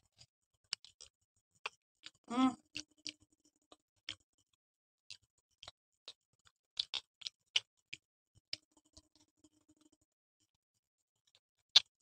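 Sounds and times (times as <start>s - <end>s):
chewing clicks and lip smacks: 0.2s - 4.2s, 5.1s - 9.3s, 11.3s - 12.0s.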